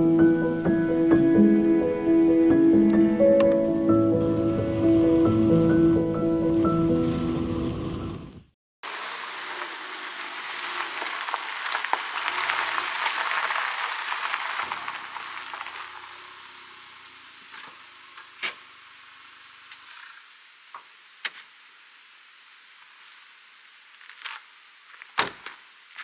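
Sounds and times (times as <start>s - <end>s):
food sizzling in a pan: 8.8s - 24.9s
sharp pops of spatter: 24.2s - 25.7s.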